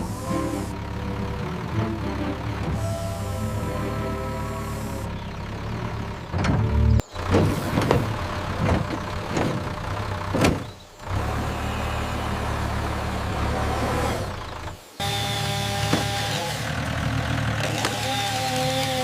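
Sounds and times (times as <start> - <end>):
heavy machine engine running: 0.0 - 19.0
sharp clanks and knocks: 6.3 - 10.8.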